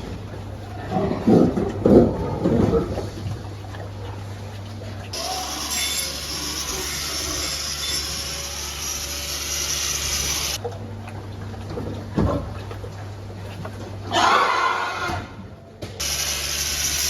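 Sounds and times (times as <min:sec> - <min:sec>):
water spraying hiss: 0:16.0 - 0:17.0.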